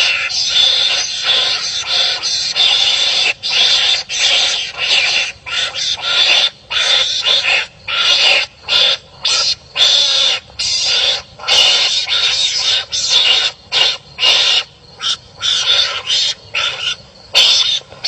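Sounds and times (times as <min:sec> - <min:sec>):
animal harsh raspy cries: 0:00.0 - 0:18.0.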